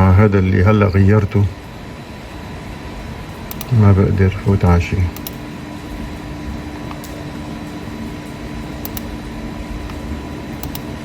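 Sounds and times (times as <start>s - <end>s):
steady mechanical hum: 0.0s - 11.0s
faint clicks: 3.5s - 3.8s, 8.8s - 9.1s, 10.6s - 10.9s.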